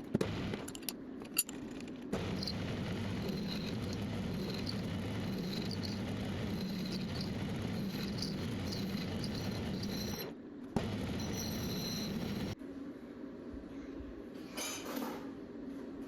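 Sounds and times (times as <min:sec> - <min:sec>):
metal lathe running: 0:02.2 - 0:12.6.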